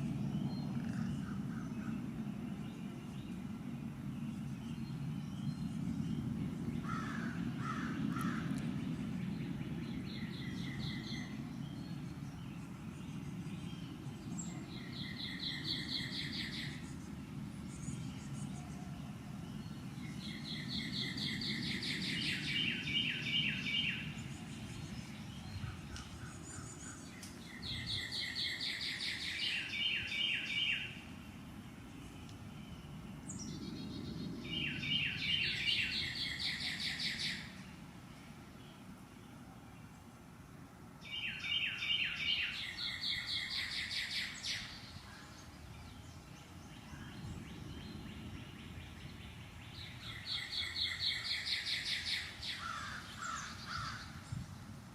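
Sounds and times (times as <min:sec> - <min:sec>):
songbird trilling: 0:34.4 - 0:37.6, 0:49.7 - 0:54.3.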